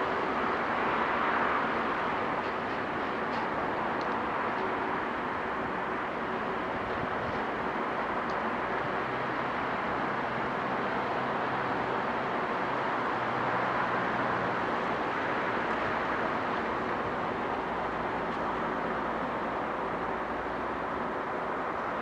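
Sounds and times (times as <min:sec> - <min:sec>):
low diesel engine tones: 0:00.0 - 0:22.0
train wheels on rails: 0:00.0 - 0:22.0.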